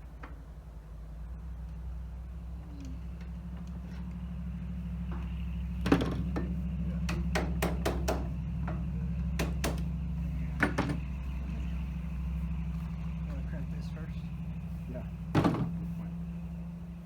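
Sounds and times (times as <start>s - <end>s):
steady low hum: 0.0s - 17.0s
hammer tapping on sheet metal: 7.1s - 8.8s, 9.4s - 9.9s.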